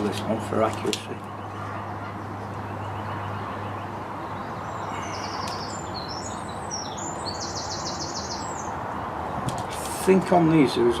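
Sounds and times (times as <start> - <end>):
small birds chirping: 0.0 - 11.0
wind noise: 8.7 - 10.0.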